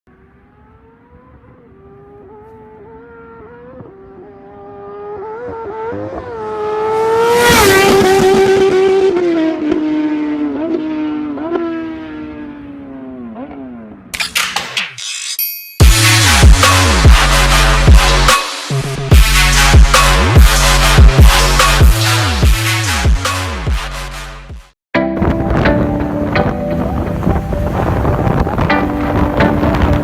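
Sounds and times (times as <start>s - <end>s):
motorbike accelerating past: 0.1s - 14.1s, 26.5s - 30.0s.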